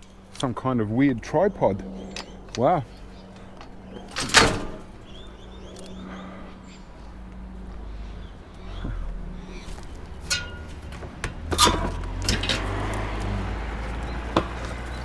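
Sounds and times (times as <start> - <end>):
scrap metal knocks and clanks: 1.9 - 5.3, 9.8 - 13.3.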